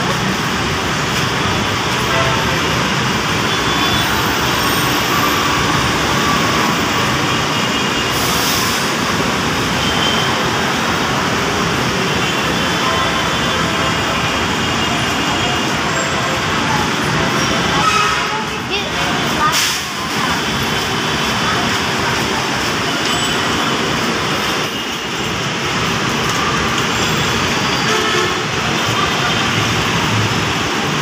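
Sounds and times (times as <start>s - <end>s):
busy road traffic roar: 0.0s - 31.0s.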